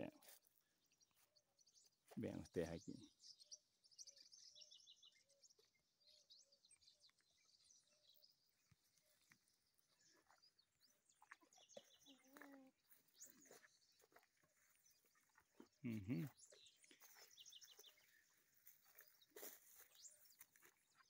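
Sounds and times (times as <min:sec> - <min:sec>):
faint bird chirps and calls: 0:00.0 - 0:21.0
low animal call: 0:15.8 - 0:16.4.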